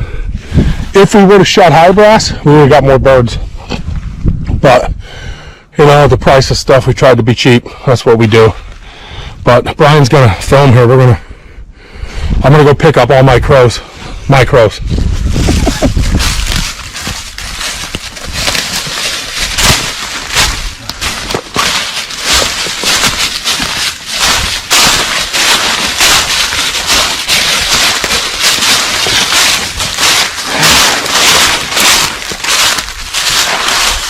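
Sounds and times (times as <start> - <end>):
footsteps through dry corn stalks: 14.8 - 34.0.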